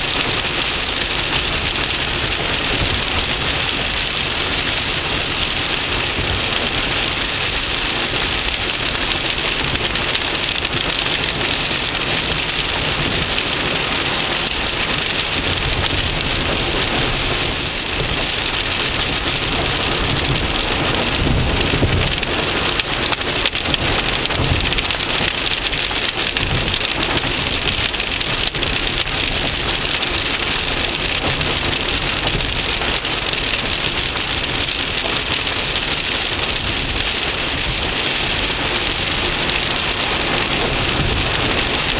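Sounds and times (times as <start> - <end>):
heavy rain pattering: 0.0 - 41.9.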